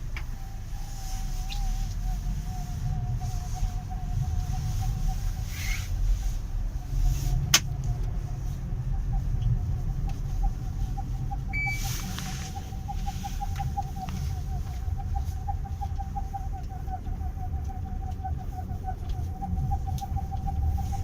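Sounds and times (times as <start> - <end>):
low rumble: 0.0 - 21.0
car cabin whistle: 11.5 - 16.0.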